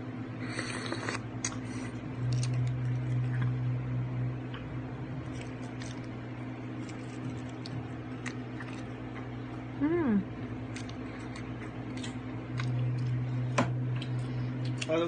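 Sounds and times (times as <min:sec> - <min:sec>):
steady low hum: 0:00.0 - 0:15.0
wet eating squishes and clicks: 0:02.2 - 0:03.6, 0:05.2 - 0:06.2, 0:06.8 - 0:09.3, 0:10.7 - 0:13.2, 0:13.9 - 0:15.0.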